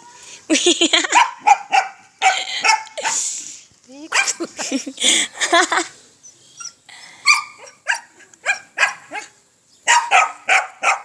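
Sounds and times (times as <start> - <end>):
dog barking: 1.1 - 3.0, 4.1 - 4.4, 7.3 - 9.3, 9.9 - 11.0.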